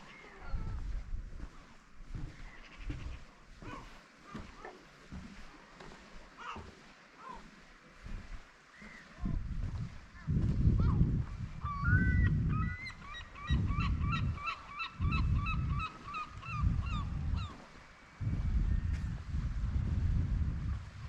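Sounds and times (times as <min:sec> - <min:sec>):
wind gusts on microphone: 0:09.1 - 0:21.0.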